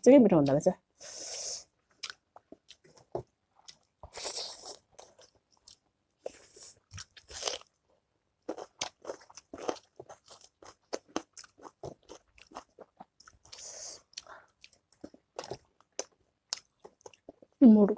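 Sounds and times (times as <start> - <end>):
short hissing sounds: 1.0 - 1.7
person crunching and chewing: 1.2 - 7.8, 8.4 - 17.6.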